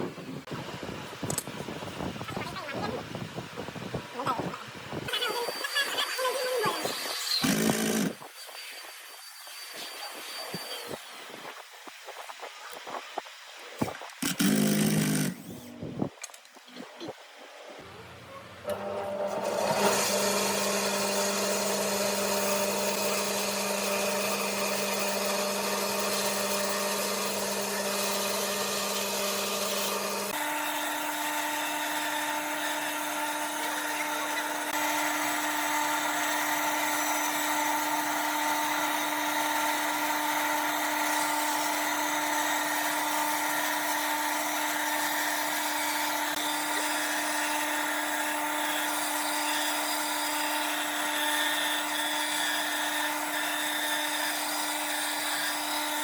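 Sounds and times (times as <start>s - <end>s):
power tool motor running: 6.5s - 11.0s, 14.2s - 15.8s, 17.8s - 56.0s.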